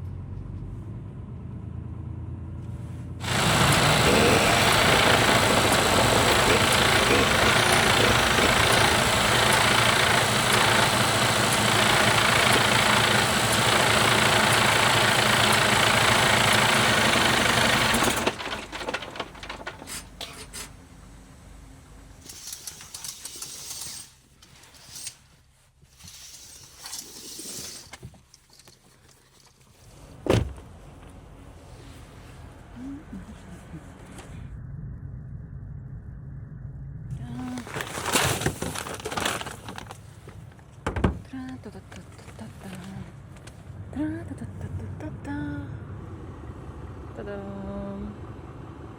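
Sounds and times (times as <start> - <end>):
diesel truck engine running: 0.0 - 22.2, 29.9 - 48.9
small clicks and rustles: 22.2 - 30.0, 37.6 - 40.8.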